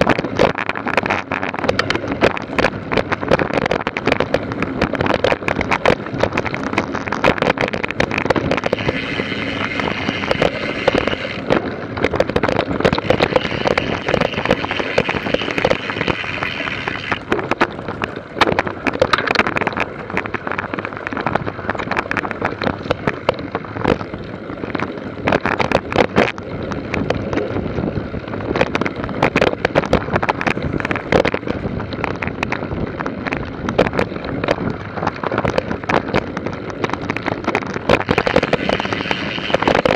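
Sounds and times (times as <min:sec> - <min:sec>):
rattling clicks and knocks: 0:00.0 - 0:24.1
wind noise on microphone: 0:00.0 - 0:39.9.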